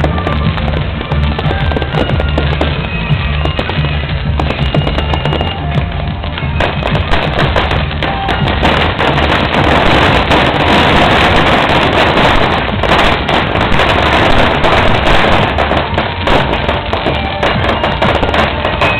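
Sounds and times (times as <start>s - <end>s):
firecrackers crackling: 0.0s - 18.9s.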